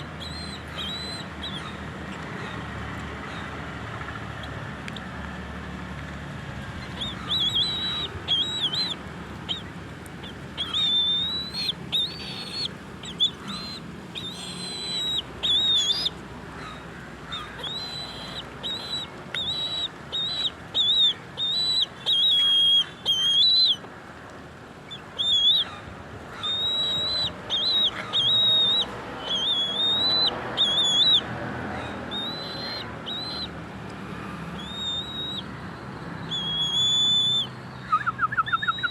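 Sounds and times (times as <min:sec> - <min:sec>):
bird whistling high notes: 0:36.3 - 0:38.9.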